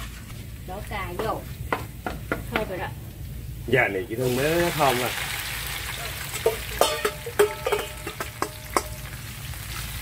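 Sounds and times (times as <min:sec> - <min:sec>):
tomatoes sizzling in hot oil: 0:00.0 - 0:10.0
metal bowl clinking on pan: 0:06.3 - 0:09.2.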